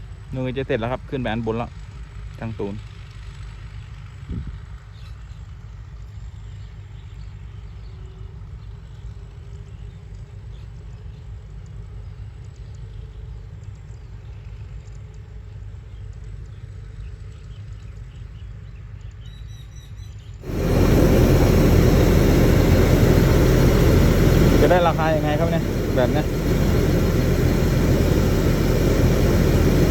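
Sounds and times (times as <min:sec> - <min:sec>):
distant combine harvester engine: 0:20.4 - 0:29.9.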